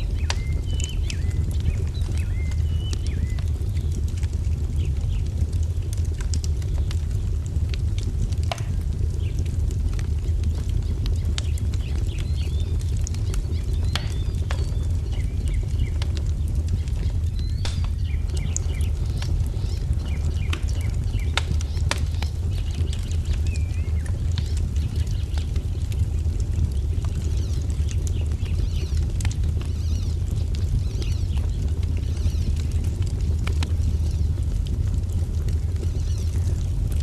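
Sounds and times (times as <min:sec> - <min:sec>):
birds chirping: 0:00.0 - 0:04.0, 0:10.5 - 0:32.7
wood fire crackling: 0:00.0 - 0:37.0.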